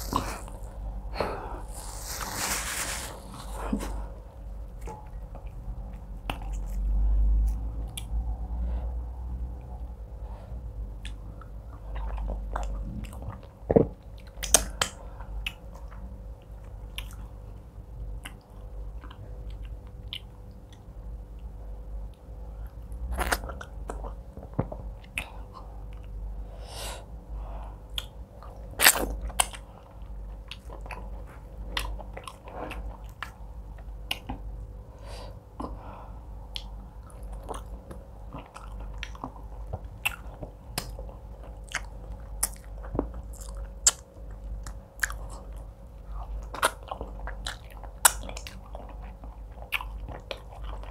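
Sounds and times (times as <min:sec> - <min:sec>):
faint steady hum: 0:00.0 - 0:50.9
chewing and wet mouth sounds: 0:04.6 - 0:08.5, 0:11.0 - 0:26.2, 0:27.8 - 0:34.7, 0:36.4 - 0:50.9.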